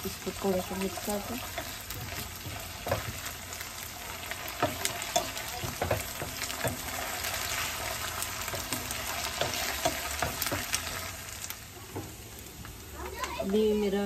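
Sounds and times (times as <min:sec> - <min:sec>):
onions sizzling in hot oil: 0:00.0 - 0:14.0
wooden spatula scraping a pan: 0:00.3 - 0:11.1.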